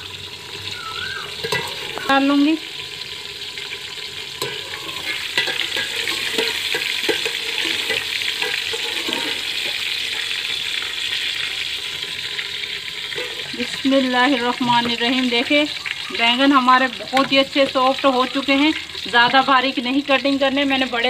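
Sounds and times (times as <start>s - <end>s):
food sizzling in hot oil: 0.0s - 21.0s.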